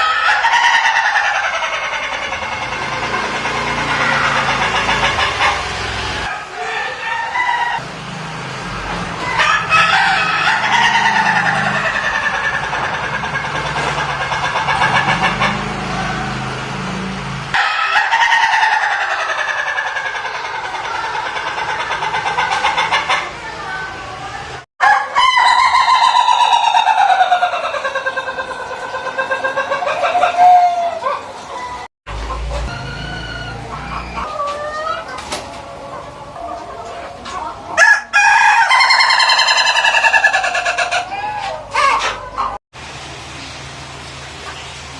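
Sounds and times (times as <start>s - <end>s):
rooster calling: 0.0s - 7.9s, 9.2s - 42.6s
rooster laughing crow: 9.3s - 13.6s, 37.8s - 42.5s.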